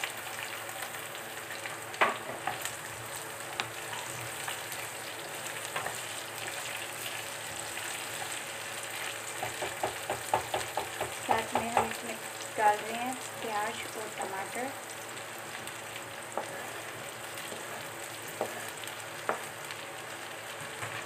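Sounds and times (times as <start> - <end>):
vegetables sizzling in hot oil: 0.0 - 21.0
spatula knocking against pan: 9.4 - 12.0.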